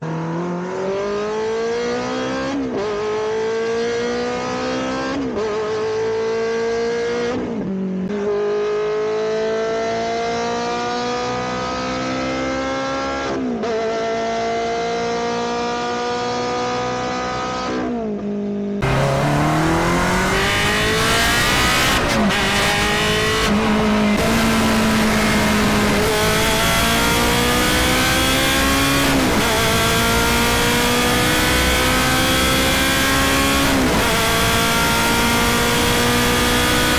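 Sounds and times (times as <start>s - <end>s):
sports car engine accelerating: 0.0s - 36.9s
rushing noise: 18.8s - 28.3s.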